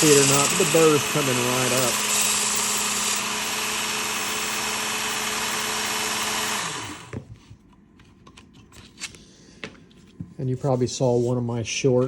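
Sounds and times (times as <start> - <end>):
belt sharpener grinding blade: 0.0 - 7.2
motor winding down: 0.0 - 7.2.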